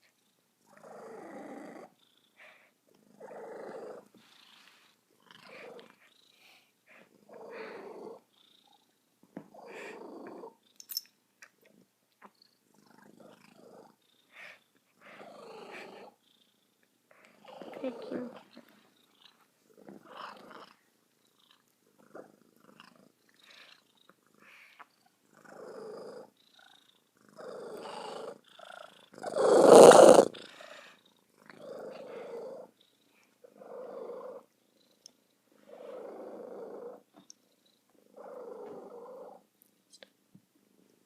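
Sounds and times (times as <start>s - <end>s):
cat cooing purrs: 7.2s - 8.3s, 9.6s - 10.6s, 17.4s - 18.7s, 29.1s - 30.4s.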